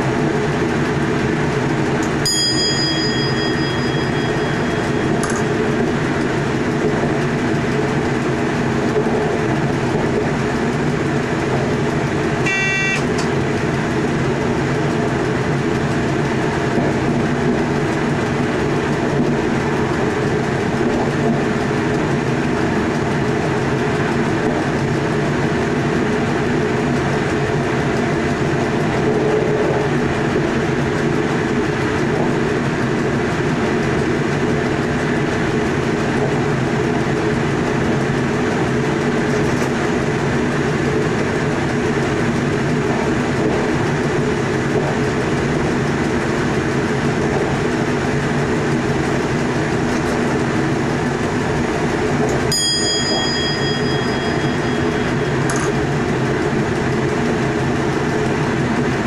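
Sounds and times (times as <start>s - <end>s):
train wheels rumbling on track: 0.0s - 59.0s
cab signalling bell ding: 2.1s - 5.6s, 12.4s - 13.2s, 52.5s - 55.9s.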